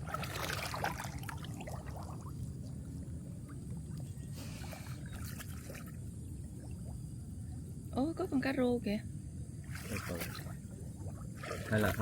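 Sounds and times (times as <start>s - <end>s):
water splashing and dripping: 0.0s - 7.0s, 9.6s - 12.0s
steady low rumble: 0.0s - 9.8s.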